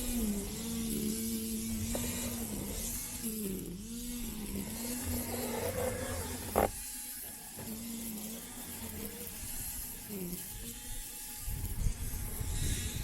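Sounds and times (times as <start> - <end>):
hiss of grass cutting: 0.0 - 6.8
electric mower motor humming: 0.0 - 6.9.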